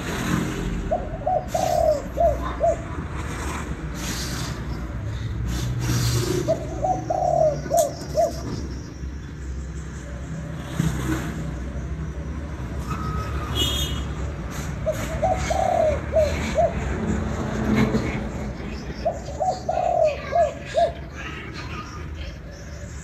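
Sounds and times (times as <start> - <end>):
dove cooing: 0.8 - 3.0, 6.2 - 8.8, 14.8 - 17.4, 18.6 - 22.9.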